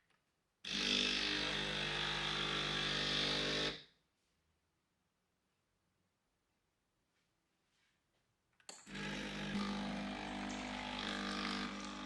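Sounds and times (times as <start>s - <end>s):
small electric motor buzzing: 8.9s - 12.0s.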